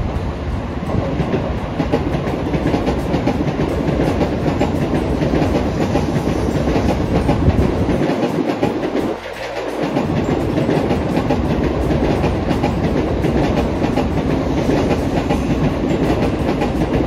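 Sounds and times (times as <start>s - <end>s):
train wheels rumbling on rails: 0.0s - 17.0s
wheels clicking over rail joints: 1.2s - 17.0s.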